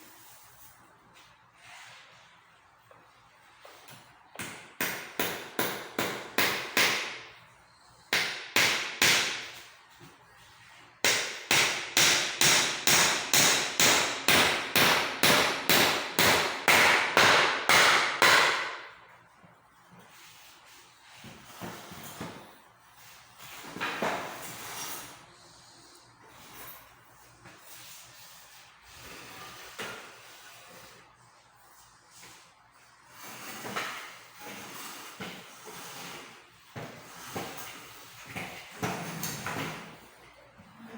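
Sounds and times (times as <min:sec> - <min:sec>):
hammer blows on a chair: 0:11.0 - 0:18.9.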